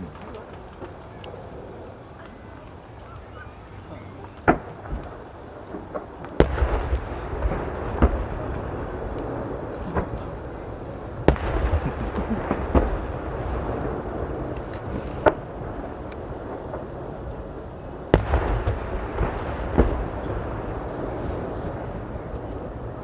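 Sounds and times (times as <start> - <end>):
fireworks bursting with sharp bangs: 0.0 - 23.0
low rumble and crackle: 0.0 - 23.0.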